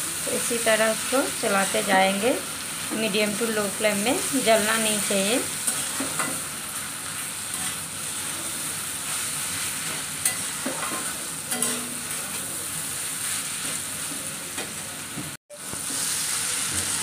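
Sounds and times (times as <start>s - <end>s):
food sizzling in a pan: 0.0s - 17.0s
spatula scraping a pan: 7.5s - 12.5s.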